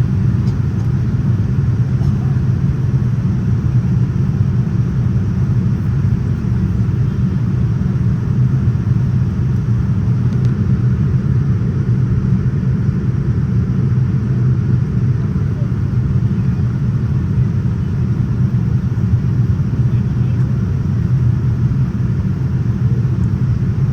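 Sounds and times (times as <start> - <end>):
airliner cabin rumble in flight: 0.0 - 23.9.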